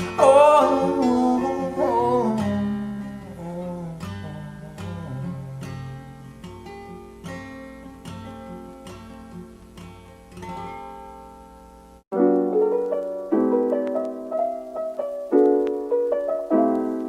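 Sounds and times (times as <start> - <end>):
acoustic guitar music: 0.0 - 17.0
gentle piano tune: 12.1 - 17.0.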